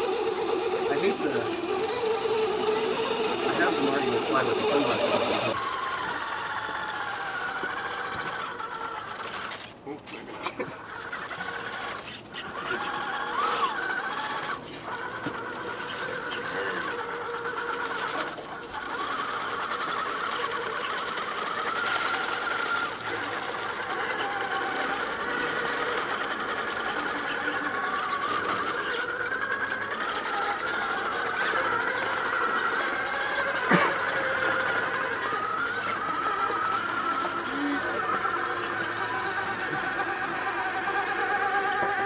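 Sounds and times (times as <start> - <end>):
small electric motor whining: 0.0 - 42.0.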